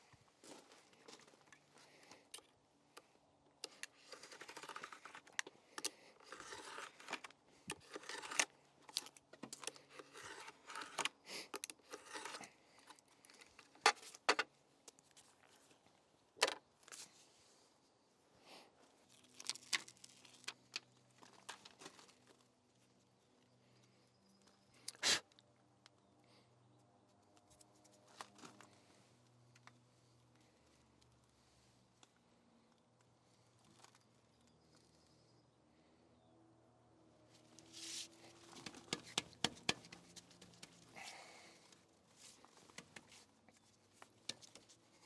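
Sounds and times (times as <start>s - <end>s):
tearing or scraping: 4.0s - 12.6s.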